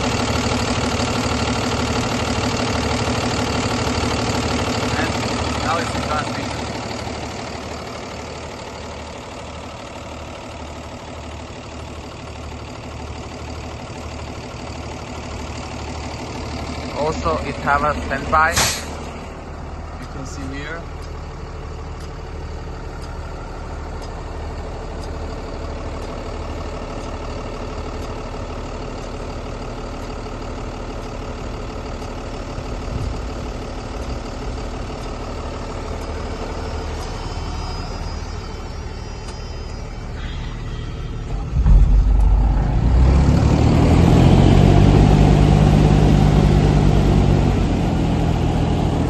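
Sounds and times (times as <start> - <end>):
truck diesel engine idling: 0.0 - 49.0
loud rushing noise: 41.4 - 44.6.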